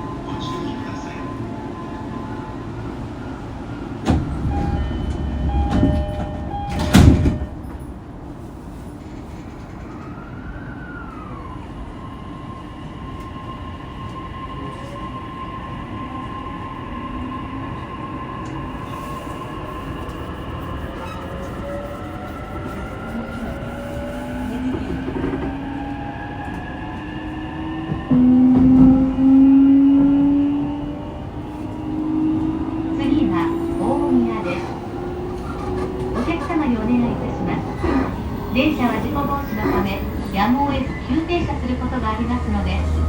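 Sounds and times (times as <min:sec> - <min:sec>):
train doors shutting: 0:00.0 - 0:10.4, 0:18.4 - 0:43.0
door chime: 0:04.6 - 0:07.6
train traction motors whining: 0:18.4 - 0:27.1, 0:30.0 - 0:43.0.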